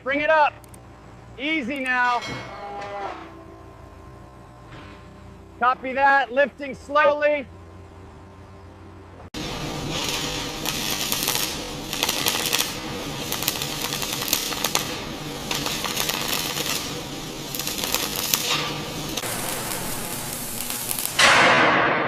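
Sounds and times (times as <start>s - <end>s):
loud ringing hit: 18.4s - 22.0s.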